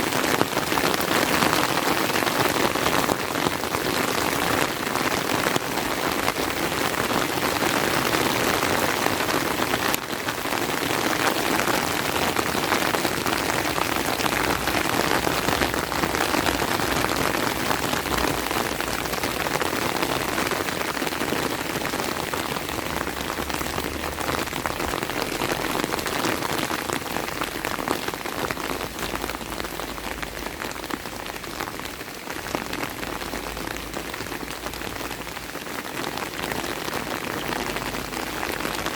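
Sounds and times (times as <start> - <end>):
steady rain patter: 0.0 - 38.9.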